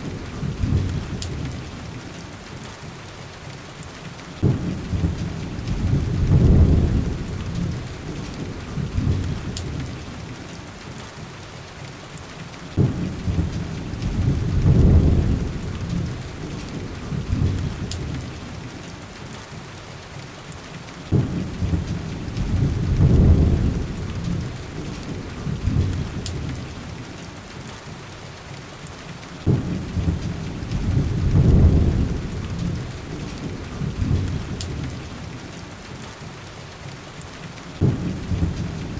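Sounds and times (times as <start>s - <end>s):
thunder rumbling: 0.0s - 2.0s, 4.4s - 10.5s, 12.7s - 18.9s, 21.1s - 27.0s, 29.4s - 35.4s, 37.8s - 38.9s
heavy rain hissing: 0.0s - 38.9s
wood fire crackling: 12.8s - 18.4s, 21.1s - 26.8s, 29.5s - 35.1s.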